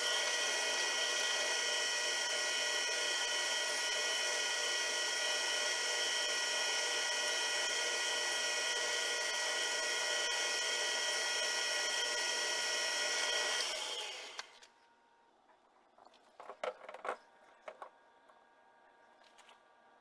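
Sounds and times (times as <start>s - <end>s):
machine-tool motor whining: 0.0s - 14.7s.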